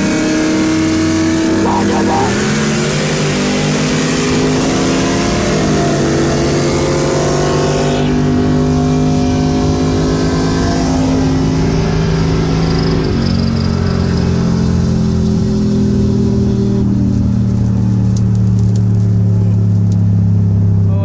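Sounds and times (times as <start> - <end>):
engine at high revs: 0.0 - 18.4.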